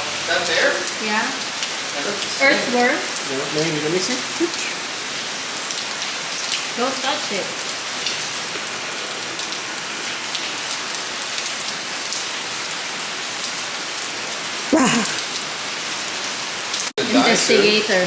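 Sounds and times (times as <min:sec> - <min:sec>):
person's voice: 0:14.7 - 0:15.2, 0:17.0 - 0:18.0.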